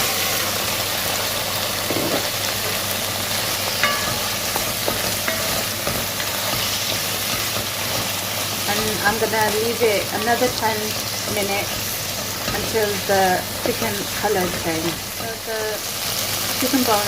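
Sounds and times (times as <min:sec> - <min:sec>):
chicken sizzling in oil: 0:00.0 - 0:17.0
utensil clicking on pan: 0:03.8 - 0:08.1.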